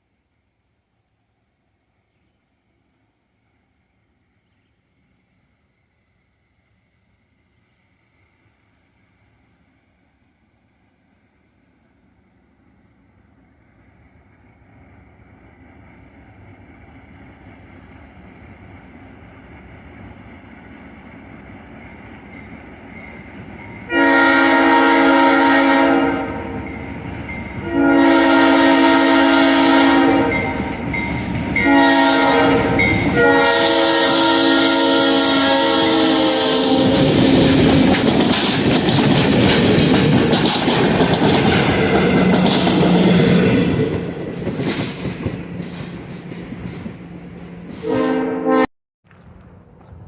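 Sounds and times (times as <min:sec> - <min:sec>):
train rumbling: 0:02.4 - 0:50.0
train air horn blasts: 0:23.9 - 0:26.6, 0:27.6 - 0:30.9, 0:31.6 - 0:37.3, 0:47.8 - 0:48.7.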